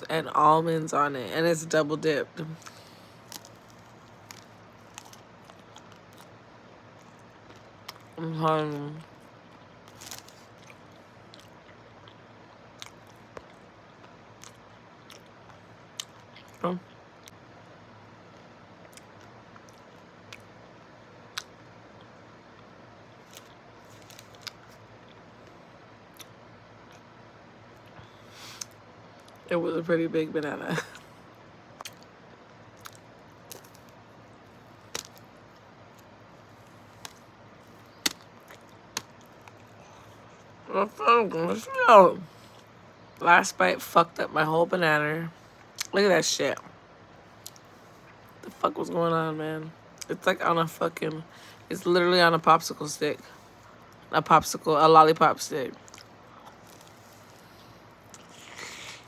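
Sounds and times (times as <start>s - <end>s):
faint steady hiss: 0.0s - 59.0s
close-up chewing: 2.6s - 8.2s, 8.8s - 17.4s, 23.2s - 25.2s, 31.8s - 40.5s, 55.7s - 59.0s.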